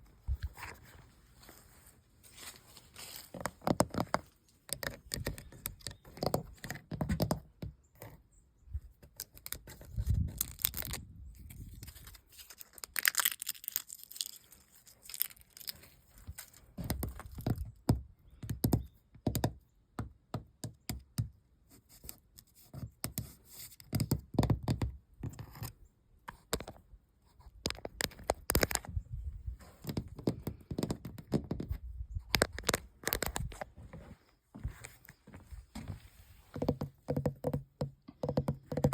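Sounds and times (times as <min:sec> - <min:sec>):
scratching and peeling paint: 0:00.4 - 0:08.2, 0:09.0 - 0:17.8, 0:21.7 - 0:29.0.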